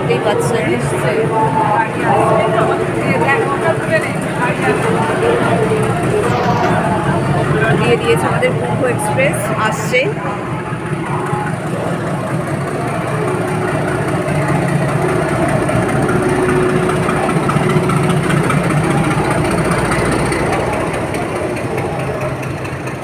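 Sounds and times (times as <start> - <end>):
train engine hum: 0.0 - 23.0.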